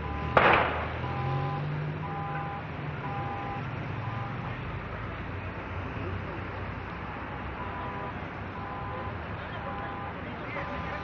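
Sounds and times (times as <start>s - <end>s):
electronic two-tone beeper: 7.6s - 10.9s.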